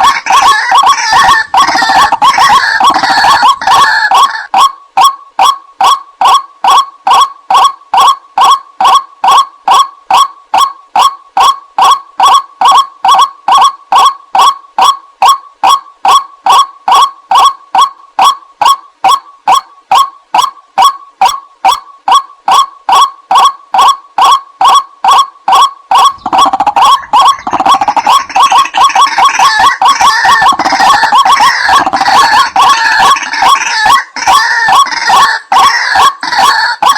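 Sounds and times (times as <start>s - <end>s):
harsh bird calls: 0.0s - 4.6s, 25.9s - 36.9s.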